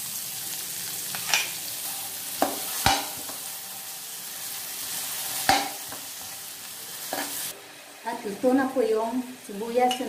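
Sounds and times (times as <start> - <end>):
onions sizzling in a wok: 0.0 - 10.0
metal spatula knocking on pan: 2.4 - 3.4, 5.5 - 5.8.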